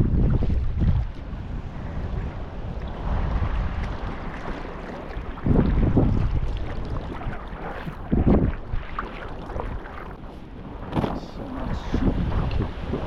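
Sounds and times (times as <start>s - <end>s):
water sounds from kayak: 0.0s - 13.0s
wind buffeting microphone: 0.0s - 13.0s.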